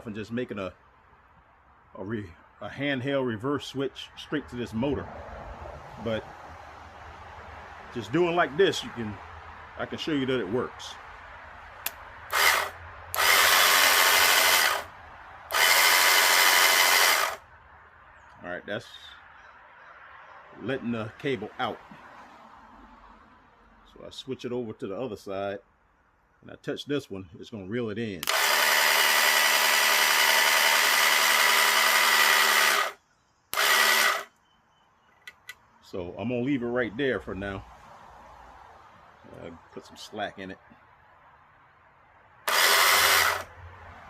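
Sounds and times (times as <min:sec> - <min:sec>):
electric winch motor running: 0:12.3 - 0:14.9, 0:15.5 - 0:17.4, 0:28.2 - 0:33.0, 0:33.6 - 0:34.3, 0:42.5 - 0:43.5.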